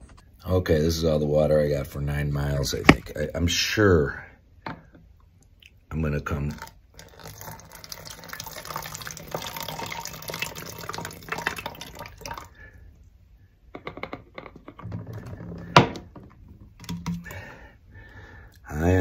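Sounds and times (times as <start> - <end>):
water sloshing in a bottle: 6.4 - 12.6.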